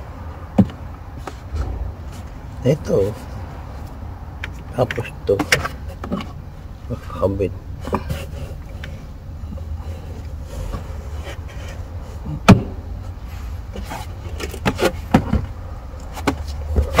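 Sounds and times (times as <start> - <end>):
steady low hum: 0.0 - 16.7
sharp knock: 1.5 - 2.6.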